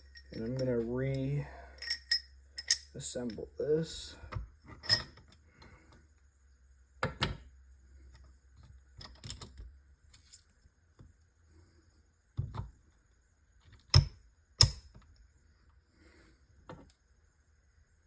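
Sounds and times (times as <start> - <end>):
metal parts clicking and knocking: 0.0 - 3.0.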